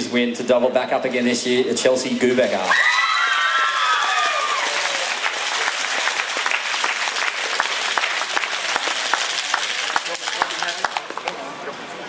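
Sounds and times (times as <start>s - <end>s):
crowd applauding: 2.7s - 12.0s.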